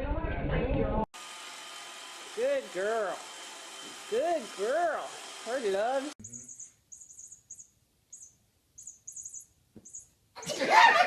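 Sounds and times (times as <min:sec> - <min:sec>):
small bird chirping: 0:06.2 - 0:10.2.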